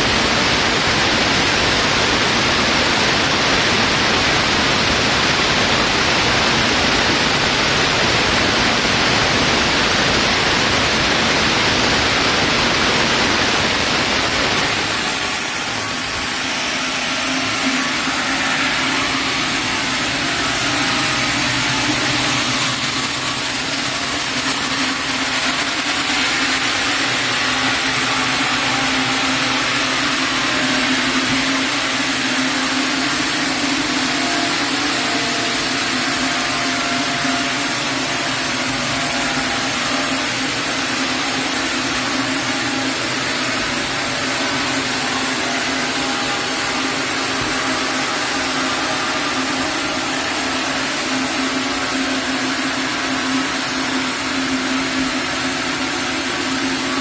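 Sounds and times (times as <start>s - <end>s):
sawmill saw running: 0.0s - 57.0s.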